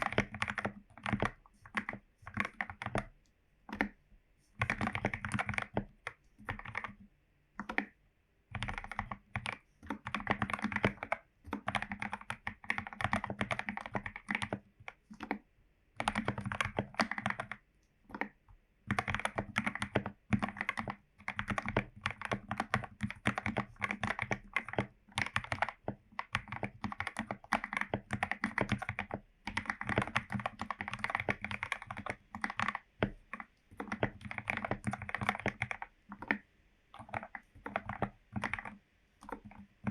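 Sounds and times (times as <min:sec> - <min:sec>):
typing on mechanical keyboard: 0:00.0 - 0:04.0, 0:04.6 - 0:39.9.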